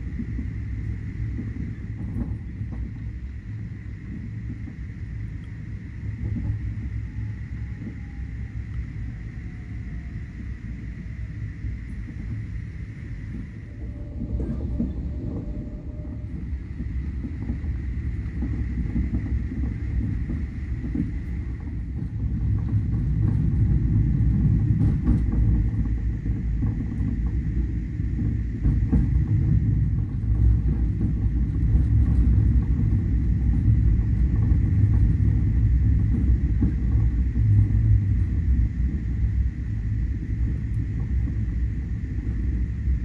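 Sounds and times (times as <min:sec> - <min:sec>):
faint high whine: 0:00.0 - 0:43.0
vehicle rumble: 0:00.0 - 0:43.0.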